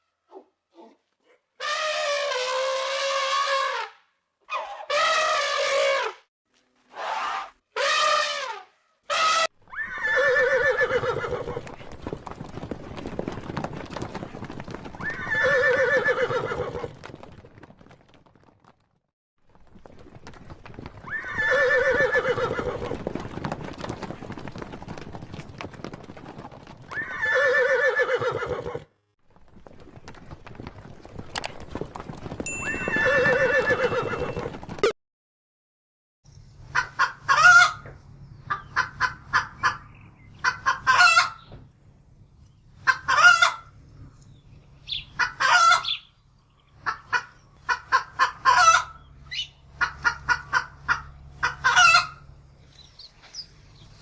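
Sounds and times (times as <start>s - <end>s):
horse whinnying: 9.1s - 11.8s, 14.9s - 17.0s, 21.0s - 23.0s, 26.9s - 28.9s, 32.6s - 34.7s
hooves clip-clopping: 10.8s - 34.9s.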